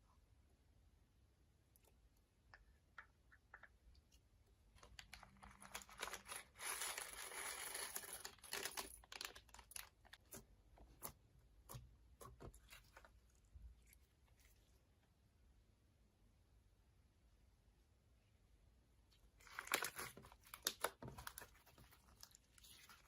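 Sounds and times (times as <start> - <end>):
crinkly crackling: 4.7 - 11.1, 19.4 - 23.0.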